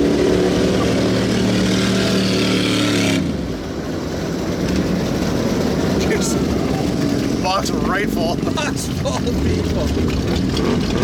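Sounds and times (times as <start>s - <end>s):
low rough engine rumble: 0.0s - 11.0s
truck engine running: 0.0s - 11.0s.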